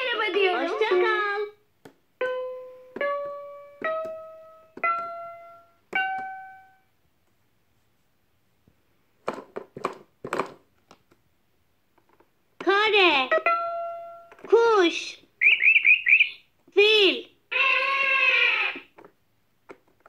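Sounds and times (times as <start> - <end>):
electronic piano-like notes: 2.2 - 6.9, 13.3 - 14.4
plastic clicks and knocks: 9.2 - 11.2, 18.9 - 20.0.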